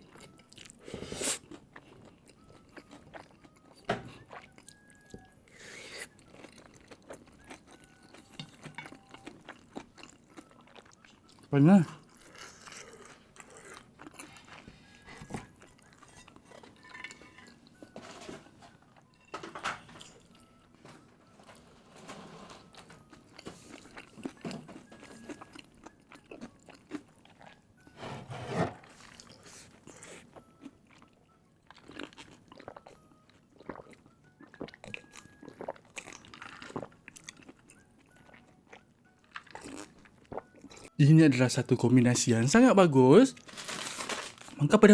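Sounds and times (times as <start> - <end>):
mouth chewing and crunching: 0.0 - 18.0, 22.6 - 28.0, 28.8 - 41.0.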